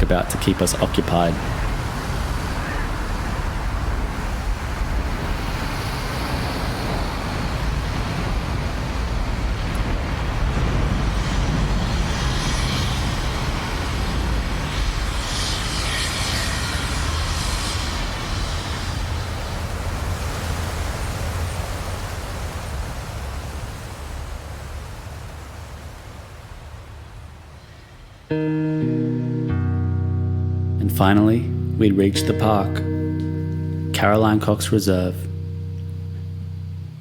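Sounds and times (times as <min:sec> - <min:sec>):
acoustic guitar music: 0:00.0 - 0:02.8, 0:09.7 - 0:17.8, 0:28.3 - 0:37.0
road traffic rumble: 0:00.0 - 0:23.0
tyre hiss: 0:10.4 - 0:20.2.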